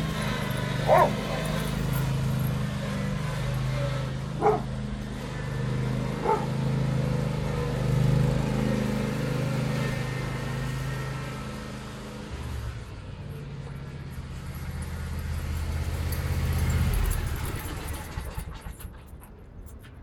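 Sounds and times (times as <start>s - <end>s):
tractor engine running: 0.0s - 20.0s
dog barking: 0.8s - 1.9s, 4.4s - 4.8s, 6.2s - 6.6s.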